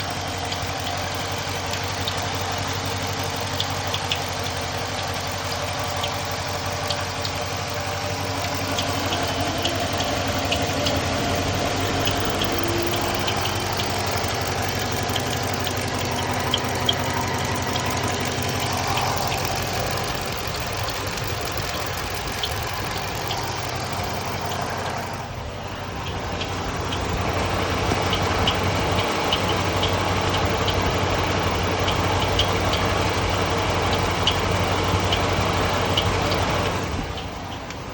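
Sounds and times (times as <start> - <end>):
car engine idling: 0.0 - 37.9
high-pitched chirps: 8.2 - 31.0.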